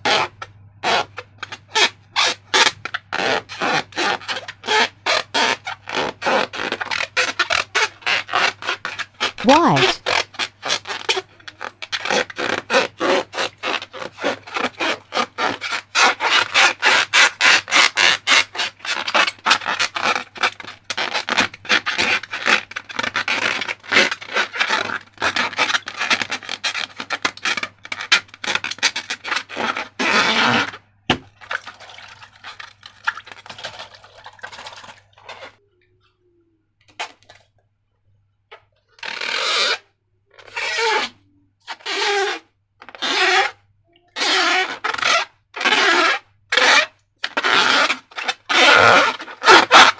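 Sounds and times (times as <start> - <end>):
slime scraping: 0.0 - 35.6, 40.4 - 49.9.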